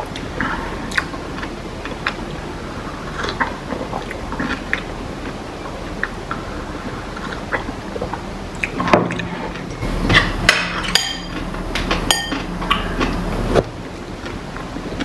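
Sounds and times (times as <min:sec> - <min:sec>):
utensil clinking against dish: 0:09.7 - 0:13.4
tableware clattering: 0:09.8 - 0:13.4.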